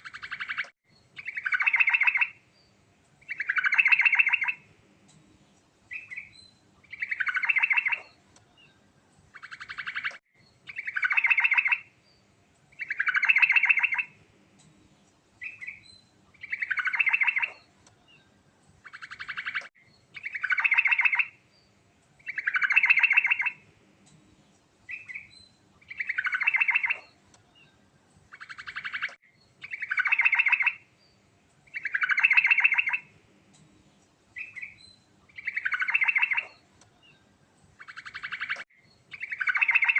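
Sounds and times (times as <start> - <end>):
bulbul singing trilled phrases: 0.0 - 2.4, 3.2 - 4.7, 5.9 - 8.2, 9.3 - 11.9, 12.7 - 14.2, 15.4 - 17.7, 18.8 - 21.4, 22.2 - 23.6, 24.9 - 30.9, 31.7 - 33.1, 34.4 - 37.2, 37.8 - 39.9.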